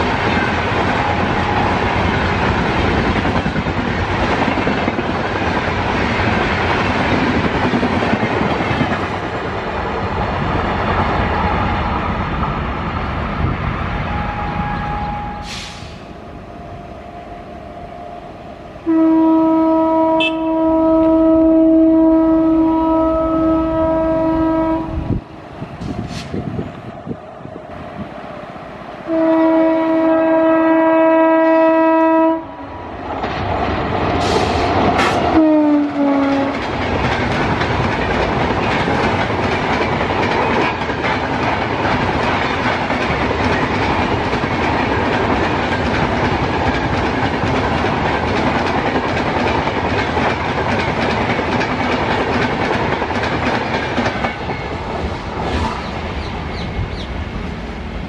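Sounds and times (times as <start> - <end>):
train coaches rumbling past: 0.0 - 58.0
locomotive horn blaring: 14.0 - 15.8, 16.5 - 25.2, 29.0 - 32.8, 35.3 - 36.6
wheels clacking over rail joints: 33.0 - 55.6.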